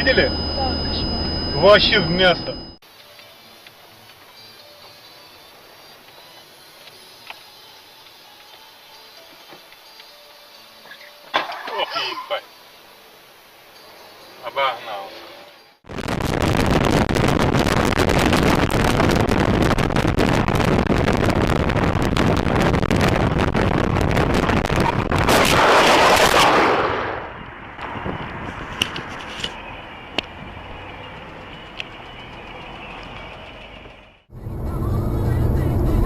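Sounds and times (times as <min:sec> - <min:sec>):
crackling noise with sharp pops: 0:15.8 - 0:29.6.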